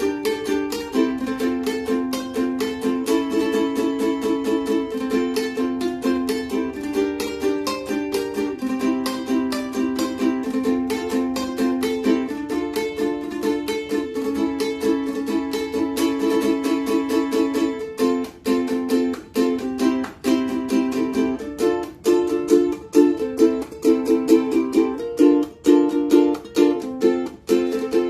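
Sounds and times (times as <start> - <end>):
ukulele strummed in chords: 0.0 - 28.0.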